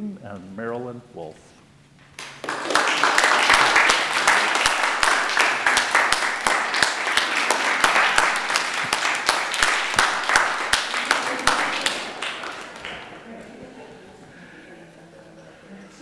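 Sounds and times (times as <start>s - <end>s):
crowd clapping: 2.1s - 13.5s.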